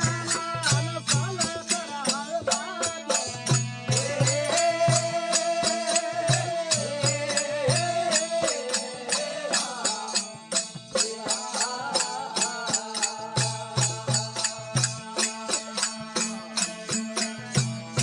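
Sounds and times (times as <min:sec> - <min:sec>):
drum beat: 0:00.0 - 0:09.1
jingling hand percussion: 0:00.0 - 0:18.0.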